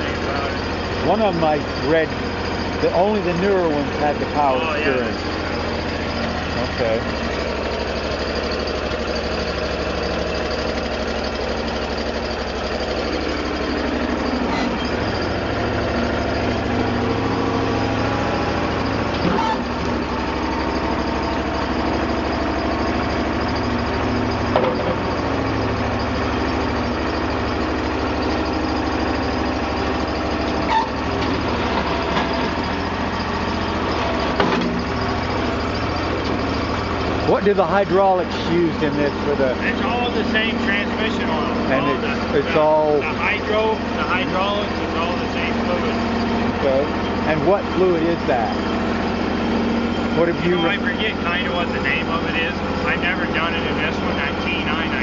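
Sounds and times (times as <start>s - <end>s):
backhoe engine running steadily: 0.0s - 55.0s.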